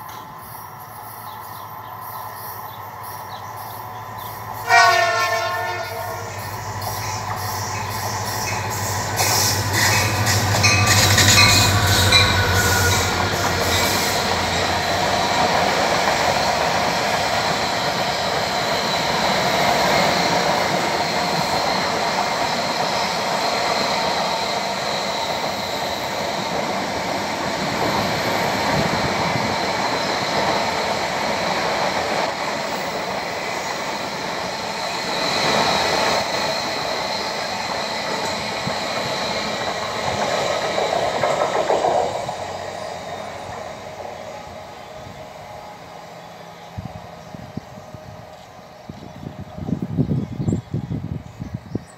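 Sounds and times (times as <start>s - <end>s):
locomotive engine passing: 0.0s - 50.0s
train cars rumbling and clattering: 0.0s - 51.9s
train horn blast: 4.6s - 6.5s.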